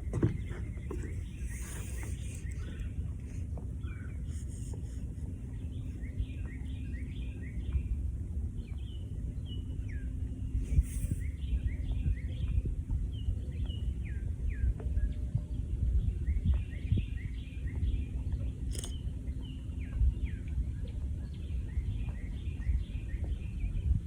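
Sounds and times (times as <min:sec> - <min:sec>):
birds chirping: 0:03.8 - 0:07.9
wind noise: 0:10.5 - 0:18.9
sharp click: 0:18.7 - 0:19.0.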